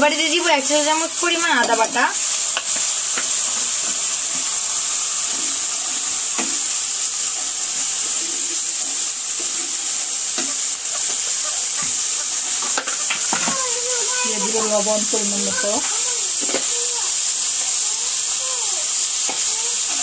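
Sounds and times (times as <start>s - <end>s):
paste sizzling in hot oil: 0.0s - 20.0s
spatula knocking against pan: 1.6s - 2.0s.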